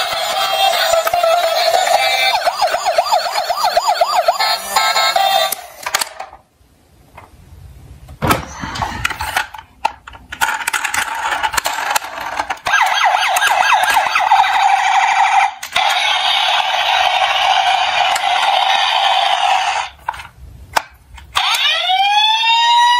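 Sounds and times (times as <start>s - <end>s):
emergency vehicle siren wailing: 0.0s - 5.6s, 12.6s - 19.9s, 21.4s - 22.9s.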